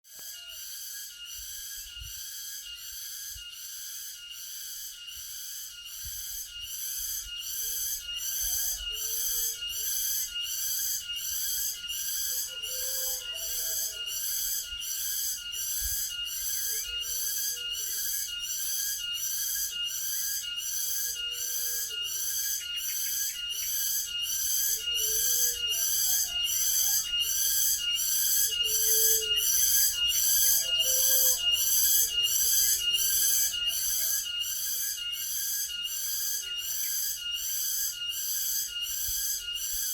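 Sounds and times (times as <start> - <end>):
cicada shrill pulsing call: 0.0 - 39.9.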